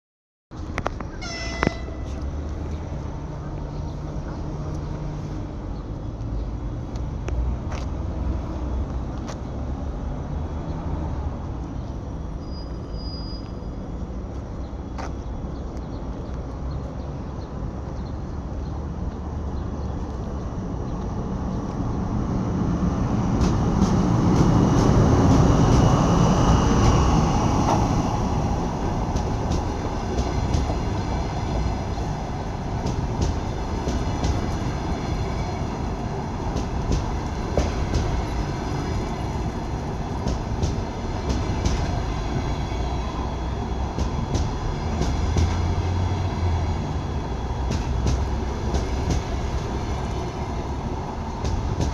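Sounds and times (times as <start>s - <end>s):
electric locomotive passing: 17.6s - 51.9s.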